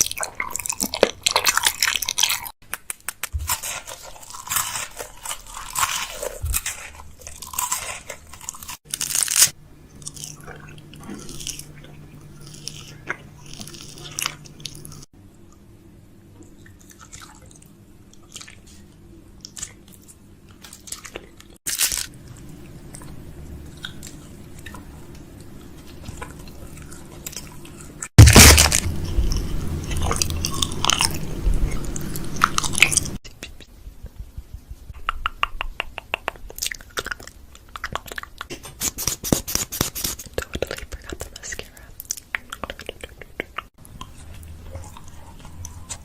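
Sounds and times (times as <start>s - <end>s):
food packaging crinkling: 0.0s - 10.4s, 20.5s - 22.4s
low steady hum: 3.4s - 38.5s, 40.3s - 46.0s.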